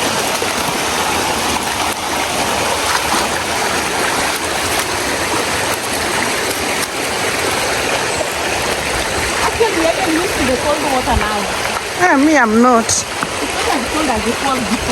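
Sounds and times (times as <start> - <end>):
waterfall rushing water: 0.0 - 14.9.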